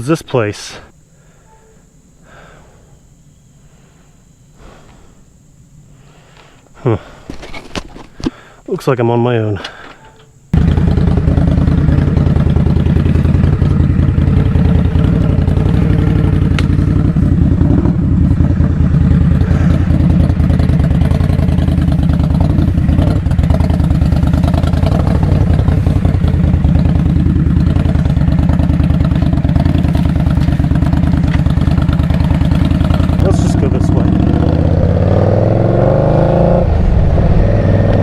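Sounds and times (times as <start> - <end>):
motorcycle engine idling: 10.0 - 35.0.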